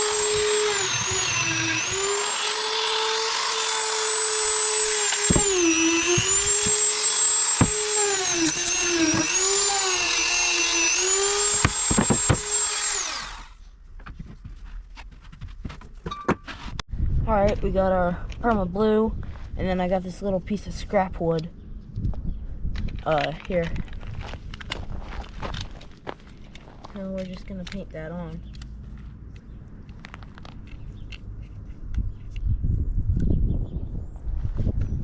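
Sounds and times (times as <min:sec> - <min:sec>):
rotary tool grinding metal: 0:00.0 - 0:13.6.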